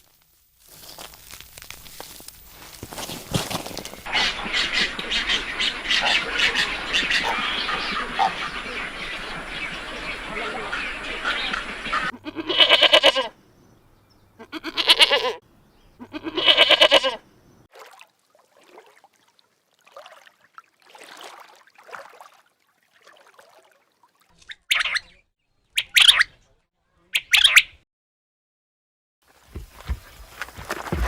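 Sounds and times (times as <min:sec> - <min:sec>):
animal calling: 0:04.0 - 0:13.4, 0:14.4 - 0:15.4, 0:16.0 - 0:17.2.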